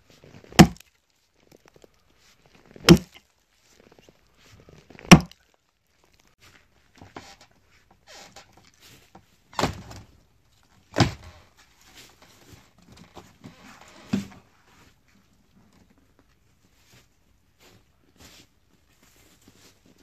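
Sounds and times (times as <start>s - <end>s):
axe chopping into tree trunk: 0.5s - 0.8s, 2.8s - 3.2s, 5.0s - 5.4s
small knocks: 0.6s - 0.8s.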